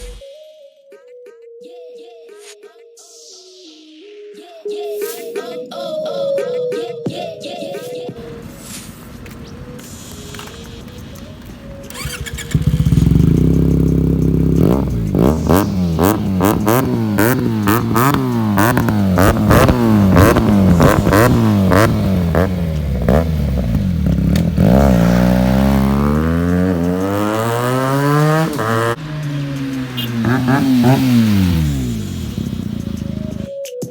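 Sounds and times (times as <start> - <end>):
exhaust crackles: 8.2 - 33.5
motorcycle engine revving: 9.3 - 33.5.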